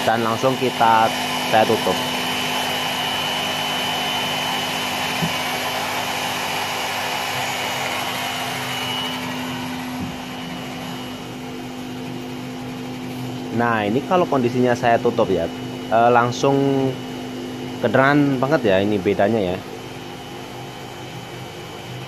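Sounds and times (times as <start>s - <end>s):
table saw running with high whine: 0.0s - 22.0s.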